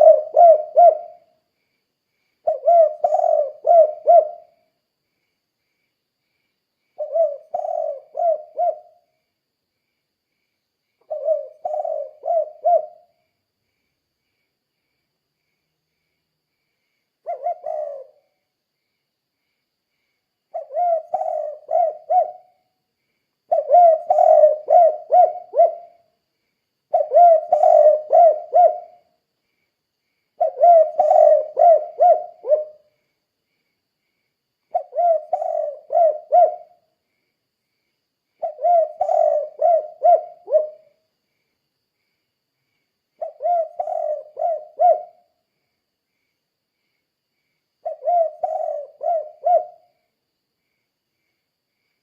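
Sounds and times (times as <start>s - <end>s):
dove cooing: 0.0s - 1.3s, 2.4s - 4.7s, 7.0s - 9.0s, 11.0s - 13.1s, 17.2s - 18.4s, 20.5s - 22.6s, 23.5s - 26.0s, 26.9s - 29.1s, 30.4s - 32.9s, 34.7s - 36.9s, 38.4s - 41.0s, 43.2s - 45.3s, 47.8s - 50.0s.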